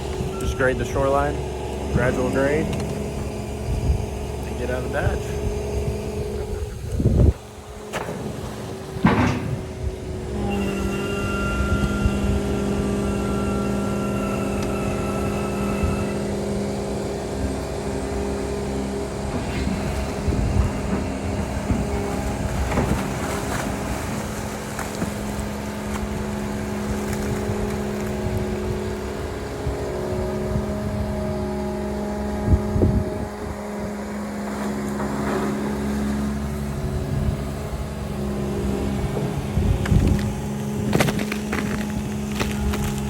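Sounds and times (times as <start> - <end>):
excavator diesel engine running: 0.0 - 43.0
machine knocks and clanks: 7.8 - 10.1, 19.2 - 23.9.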